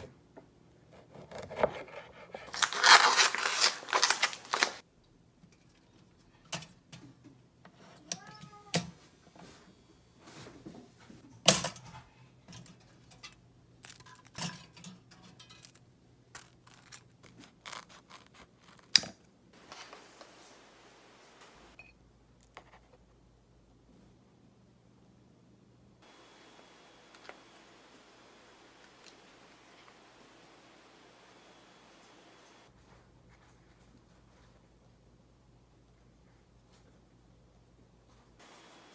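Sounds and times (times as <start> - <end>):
faint hiss: 19.6 - 21.8, 26.0 - 32.7.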